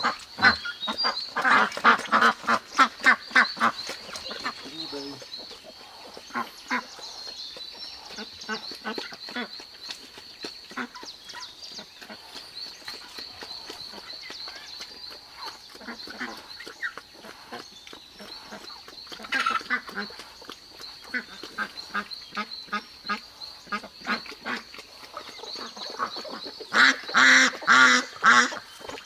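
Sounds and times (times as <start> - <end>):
ducks quacking: 0.0 - 7.2, 21.1 - 29.0.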